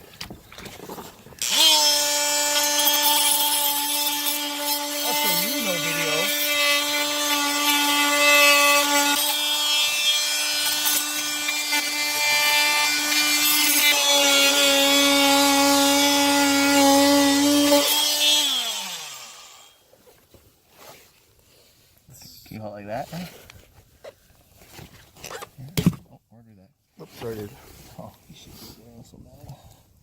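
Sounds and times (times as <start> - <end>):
electric power saw cutting plumbing: 1.4 - 19.8.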